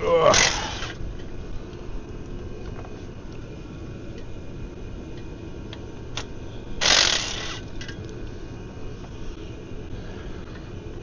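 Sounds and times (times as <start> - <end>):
low background rumble: 0.0 - 11.0
harsh rasping burst: 6.8 - 7.6.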